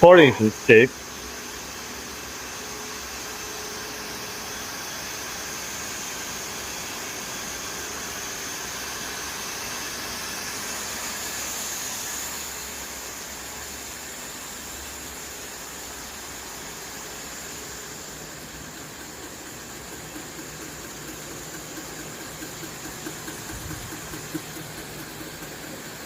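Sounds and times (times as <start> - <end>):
polishing machine whirring: 0.9 - 26.0.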